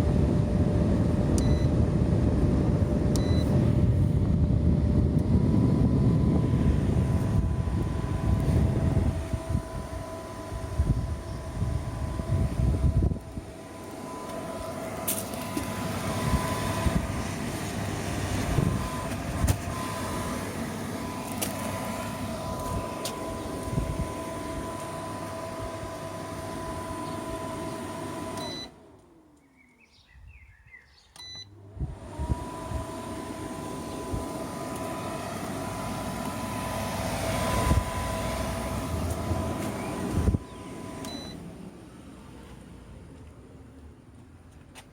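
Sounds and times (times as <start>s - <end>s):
air conditioner humming: 0.0s - 29.4s
fan winding down: 0.0s - 29.4s, 31.2s - 43.8s
short beeps: 1.4s - 1.7s, 3.2s - 3.5s, 28.4s - 28.7s, 31.2s - 31.5s, 41.0s - 41.4s.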